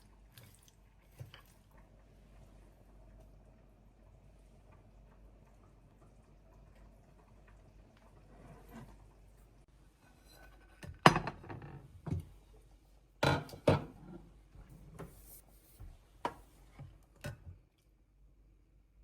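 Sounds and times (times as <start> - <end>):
dishes and glassware clinking: 13.2 - 14.0.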